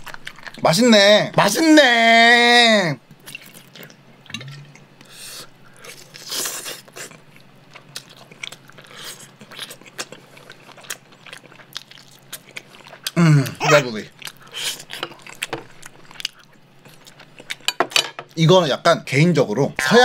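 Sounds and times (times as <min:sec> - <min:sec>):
person chewing and eating: 0:00.0 - 0:00.6, 0:03.1 - 0:18.0.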